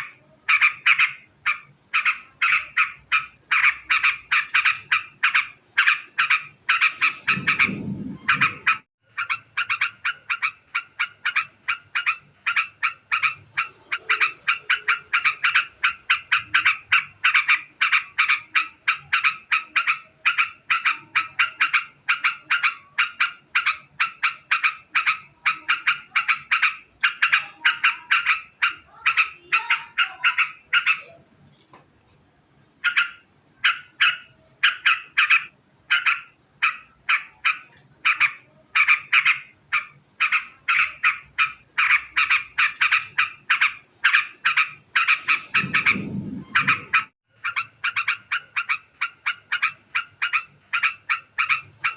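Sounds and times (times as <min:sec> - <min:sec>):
bulbul chattering call: 0:00.0 - 0:31.1, 0:32.8 - 0:51.9
low rumble: 0:07.2 - 0:08.8, 0:45.4 - 0:47.1.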